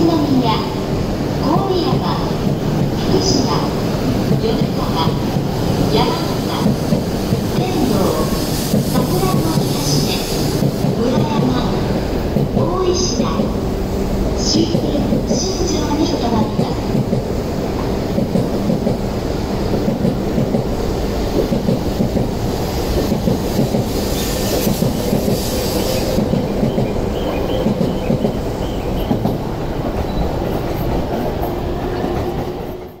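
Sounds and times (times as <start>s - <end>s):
train rumbling past: 0.0s - 33.0s
hiss: 6.5s - 11.0s, 21.3s - 26.4s.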